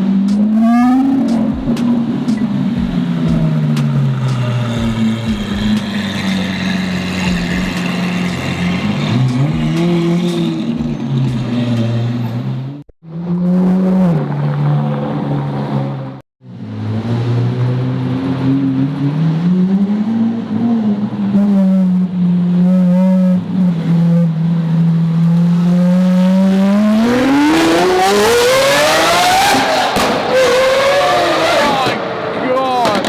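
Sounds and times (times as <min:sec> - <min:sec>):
sports car engine running: 0:00.0 - 0:11.8.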